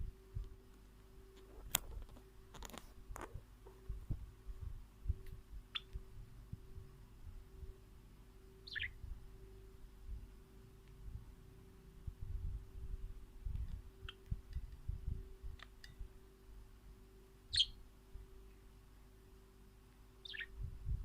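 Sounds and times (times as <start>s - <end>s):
steady hum: 0.0s - 21.0s
small bird chirping: 5.1s - 6.3s, 8.4s - 9.8s, 13.6s - 16.1s, 17.4s - 17.8s, 20.1s - 21.0s.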